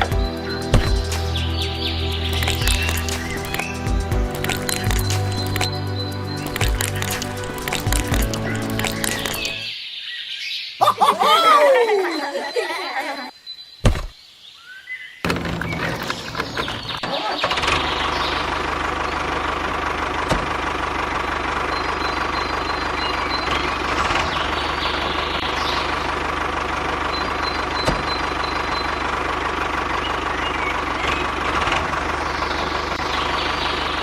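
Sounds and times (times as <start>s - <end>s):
motor humming: 0.0s - 9.7s.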